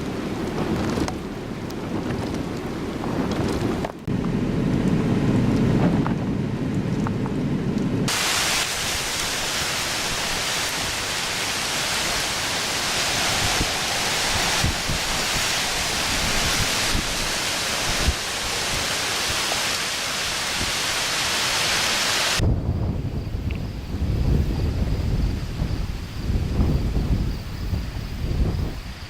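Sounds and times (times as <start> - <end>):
wind gusts thumping microphone: 0.0 - 29.0
strong wind rushing: 7.9 - 29.0.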